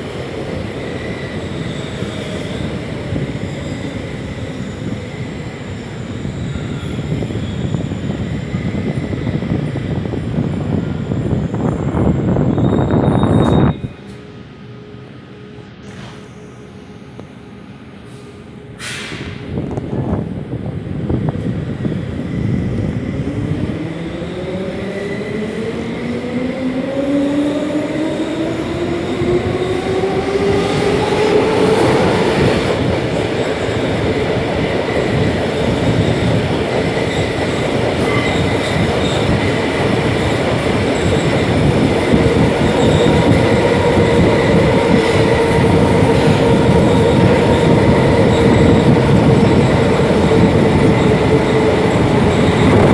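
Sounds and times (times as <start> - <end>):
brief sharp noise: 18.8 - 19.4
train wheels clattering on rails: 28.8 - 52.9.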